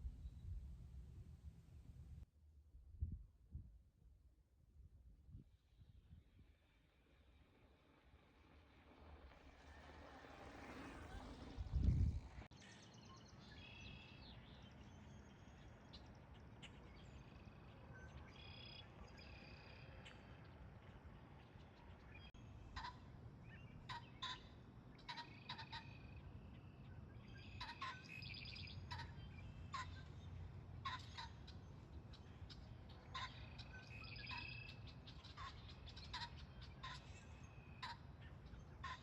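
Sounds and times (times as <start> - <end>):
birds chirping and calling: 22.8 - 39.0.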